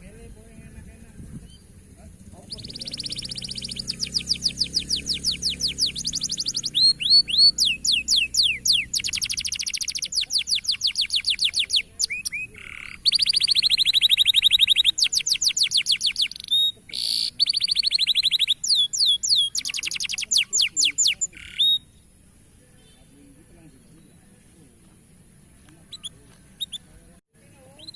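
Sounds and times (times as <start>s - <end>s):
canary singing trills: 0.0s - 24.4s, 25.5s - 27.0s, 27.6s - 27.9s.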